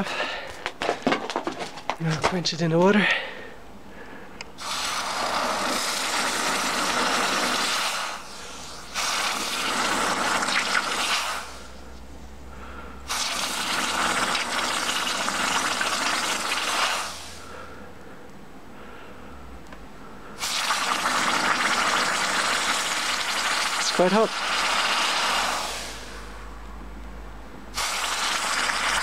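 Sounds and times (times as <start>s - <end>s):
hot steel sizzling in water: 4.6s - 11.7s, 13.1s - 17.4s, 20.4s - 26.3s, 27.7s - 29.0s.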